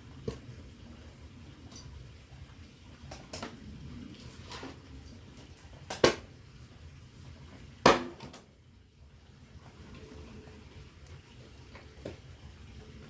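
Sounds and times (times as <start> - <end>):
axe striking firewood: 7.8 - 8.4.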